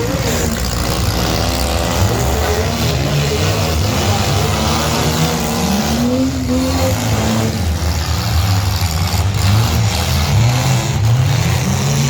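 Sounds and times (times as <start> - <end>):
pickup truck engines revving: 0.0 - 12.0.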